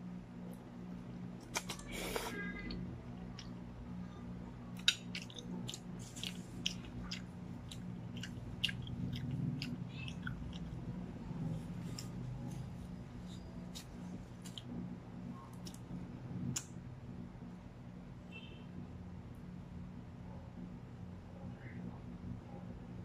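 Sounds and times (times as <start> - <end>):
low steady hum: 0.0 - 23.0
wet mouth smacks and clicks: 4.8 - 10.8.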